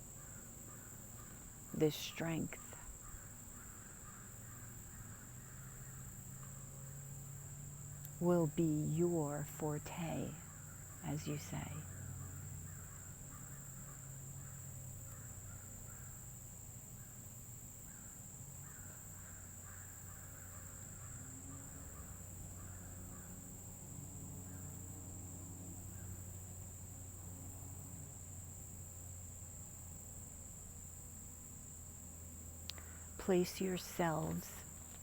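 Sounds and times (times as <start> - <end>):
distant birds calling: 0.0 - 26.7, 32.2 - 35.0
high-pitched hiss: 31.6 - 35.0.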